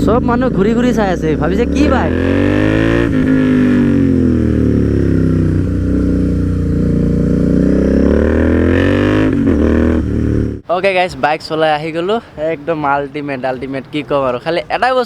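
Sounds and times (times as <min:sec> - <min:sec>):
motorcycle engine running under load: 0:00.0 - 0:10.6.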